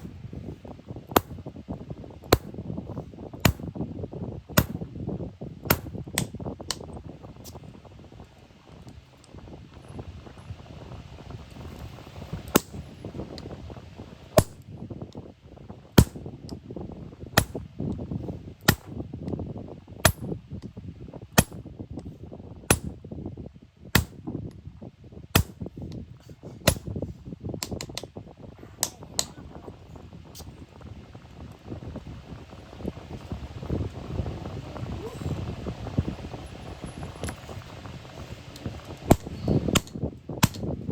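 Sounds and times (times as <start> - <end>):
hammer striking hot iron on anvil: 1.1 - 1.4, 2.2 - 2.5, 3.4 - 3.7, 4.6 - 4.9, 5.7 - 6.3, 12.5 - 12.8, 14.4 - 14.6, 16.0 - 16.2, 17.4 - 17.6, 18.6 - 18.9, 20.0 - 20.3, 21.4 - 21.6, 22.7 - 23.0, 24.0 - 24.2, 25.4 - 25.6, 26.6 - 26.9, 39.1 - 40.6.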